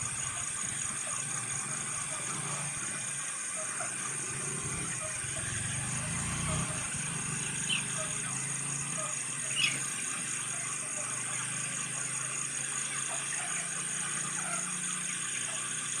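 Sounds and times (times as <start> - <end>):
chicks chirping and peeping: 9.4 - 10.2.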